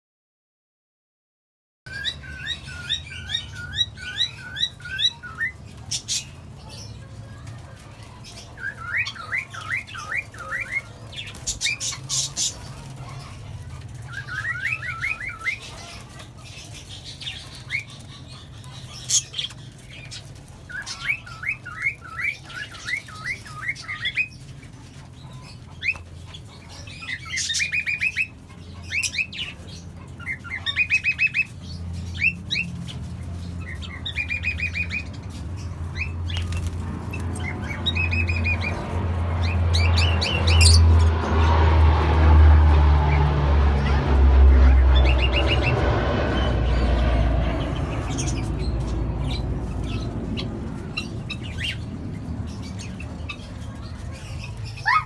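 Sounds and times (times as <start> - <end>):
parrots chirping and calling: 1.9 - 55.0
low hum: 38.2 - 53.6.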